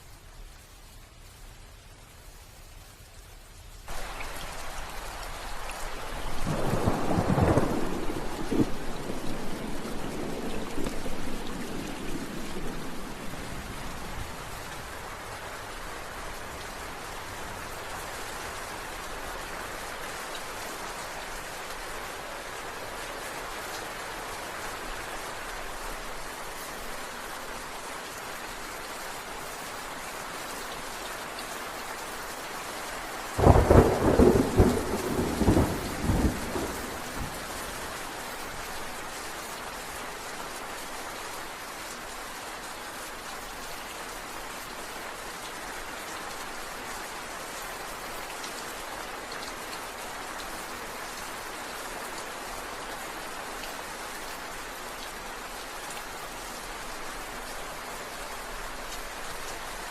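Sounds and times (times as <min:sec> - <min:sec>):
rain falling: 0:00.0 - 0:59.9
thunderclap crackling and rumbling: 0:06.3 - 0:14.4, 0:33.4 - 0:37.6.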